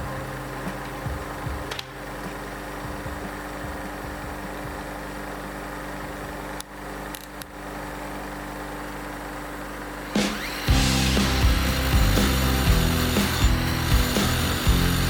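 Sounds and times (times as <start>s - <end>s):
small electric motor humming: 2.8s - 15.0s
tool working roughly: 10.0s - 15.0s.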